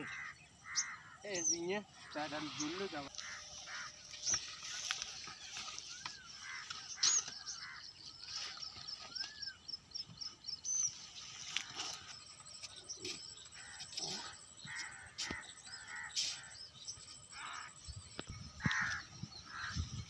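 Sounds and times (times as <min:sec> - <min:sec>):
crows cawing: 0:00.0 - 0:08.3, 0:13.6 - 0:16.7, 0:17.3 - 0:17.8, 0:18.6 - 0:19.9
birds chirping: 0:00.0 - 0:20.0.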